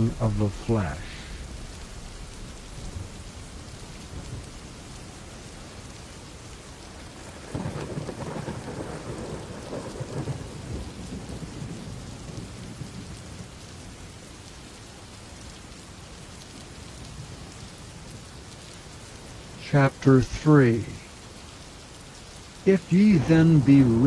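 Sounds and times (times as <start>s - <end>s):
rain hissing: 0.0s - 24.0s
thunder rumbling: 7.2s - 13.2s, 22.6s - 24.0s.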